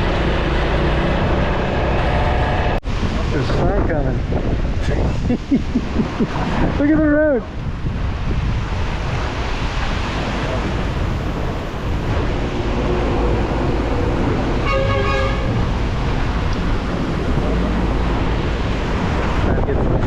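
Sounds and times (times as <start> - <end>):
wind buffeting microphone: 0.0 - 20.0
vehicle horn honking: 14.6 - 15.6.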